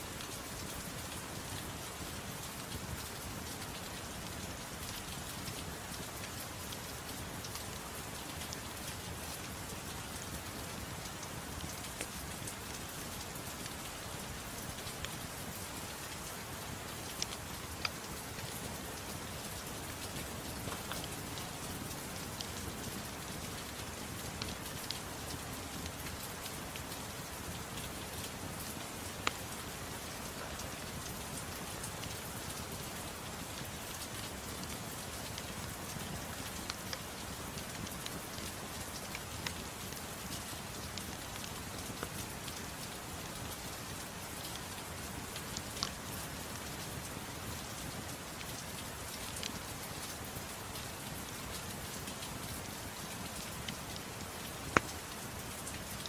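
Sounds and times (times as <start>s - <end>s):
steady rain: 0.0s - 56.0s
crackling pops and clicks: 54.6s - 55.1s.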